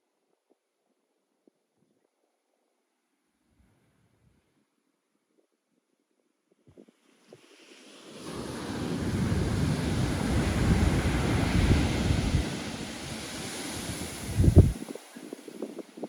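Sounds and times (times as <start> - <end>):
wave breaking on shore: 7.3 - 16.0
wind buffeting microphone: 8.4 - 16.0.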